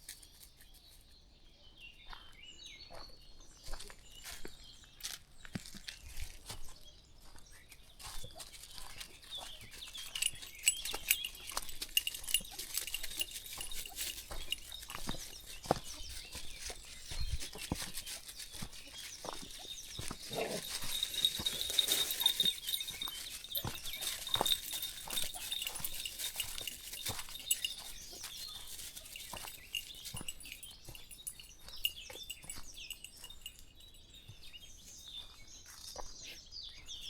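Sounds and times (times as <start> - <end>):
footsteps crunching on a path: 2.1 - 37.0
high bird chirps: 8.8 - 35.8
dog sounds: 9.5 - 31.0.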